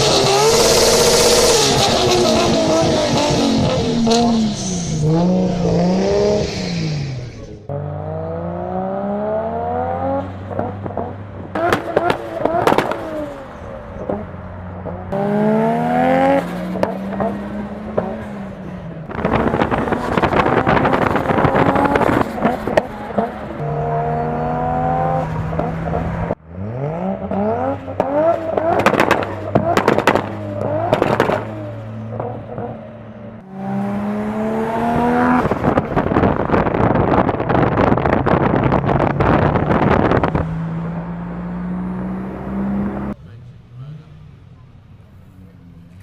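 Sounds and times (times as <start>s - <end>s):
car engine accelerating hard: 0.0s - 46.0s
sharp exhaust cracks: 27.9s - 32.6s.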